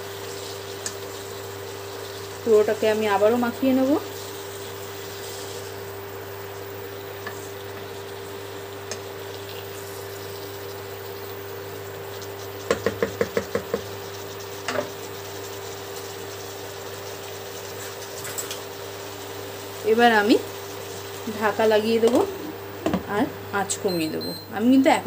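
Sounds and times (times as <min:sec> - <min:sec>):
vegetables sizzling in a pot: 0:00.0 - 0:25.0
spatula knocking against pot: 0:12.7 - 0:13.9.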